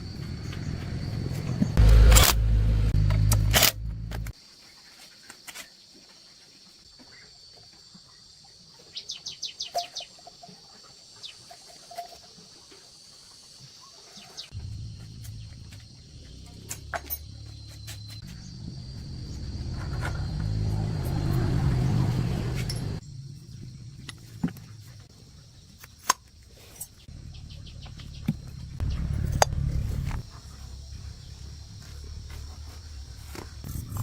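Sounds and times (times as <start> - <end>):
loud low rumble: 0.0 - 4.3, 14.6 - 24.1, 27.1 - 34.0
high insect drone: 14.5 - 34.0.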